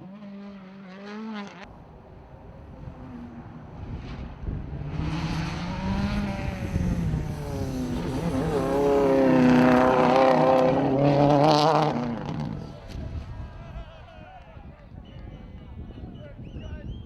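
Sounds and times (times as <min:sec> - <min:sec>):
rally car engine revving: 0:00.0 - 0:01.7, 0:02.5 - 0:13.4.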